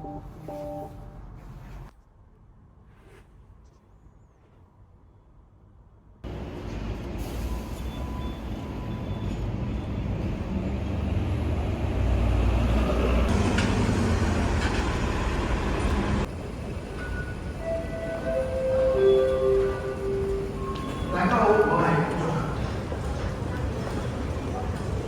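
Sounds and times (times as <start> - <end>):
vehicle engine rumbling: 12.8 - 18.2.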